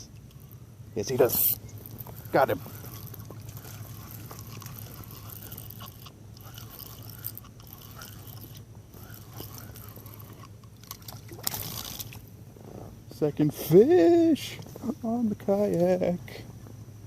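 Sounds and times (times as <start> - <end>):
fishing reel grinding whir: 0.0 - 12.3
fishing reel clicks: 1.2 - 12.2.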